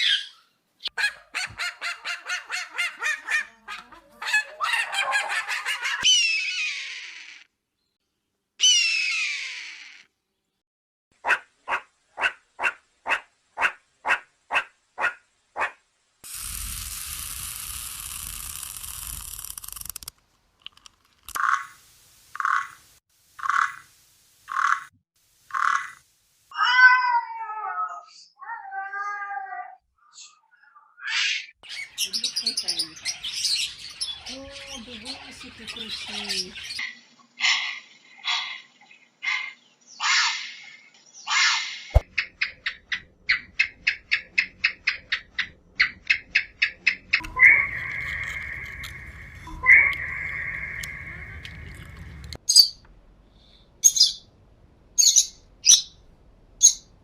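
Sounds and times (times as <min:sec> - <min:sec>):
cat meowing: 0:26.5 - 0:29.8.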